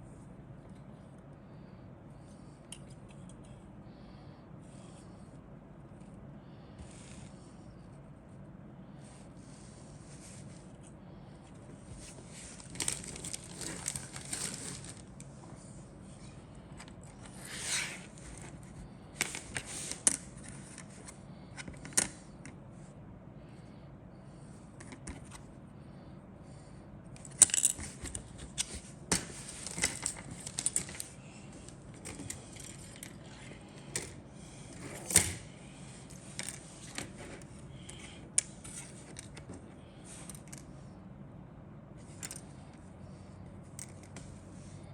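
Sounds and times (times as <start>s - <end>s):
packaging rustling: 12.2s - 15.2s, 27.6s - 33.0s.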